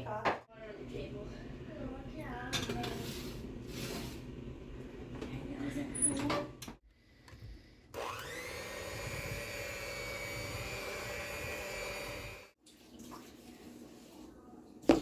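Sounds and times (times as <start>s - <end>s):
electric motor whining: 8.0s - 12.5s.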